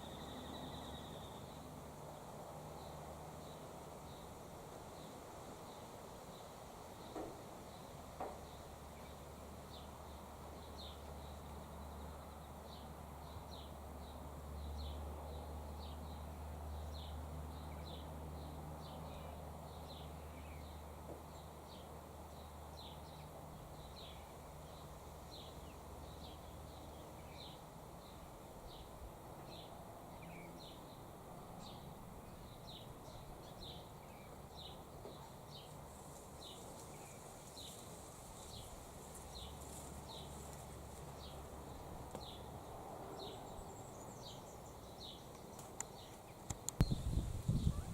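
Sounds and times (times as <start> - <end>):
faint low hum: 0.0 - 5.1
small bird chirping: 43.3 - 47.9.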